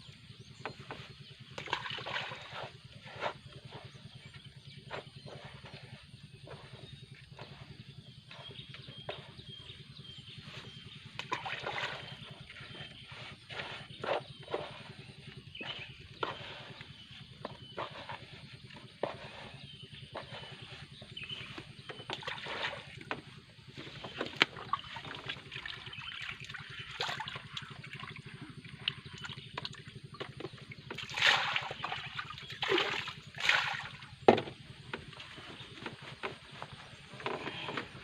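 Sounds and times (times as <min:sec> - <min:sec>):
water sloshing and lapping: 0:00.0 - 0:38.0
water splashes: 0:01.6 - 0:02.6, 0:11.2 - 0:12.4, 0:24.0 - 0:29.9, 0:30.5 - 0:34.1.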